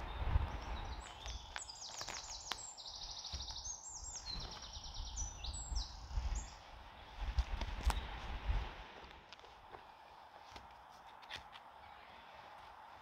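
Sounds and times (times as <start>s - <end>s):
songbird trilling song: 0.0s - 7.2s, 7.8s - 8.3s
footsteps on forest floor: 1.0s - 4.8s.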